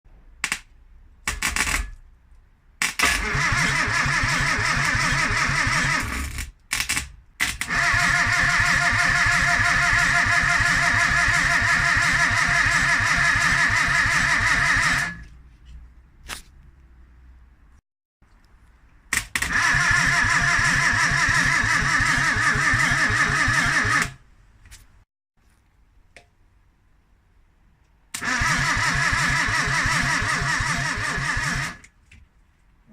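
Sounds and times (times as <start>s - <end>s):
engine cranking on starter: 3.2s - 6.3s, 7.6s - 15.2s, 19.5s - 24.1s, 28.2s - 31.8s
car engine turning over and starting: 28.2s - 31.8s.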